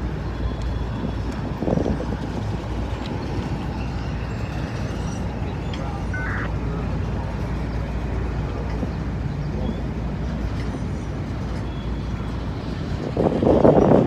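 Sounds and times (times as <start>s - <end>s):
freight train wheels rumbling on rail: 0.0s - 14.0s
rush of noise: 5.8s - 6.6s.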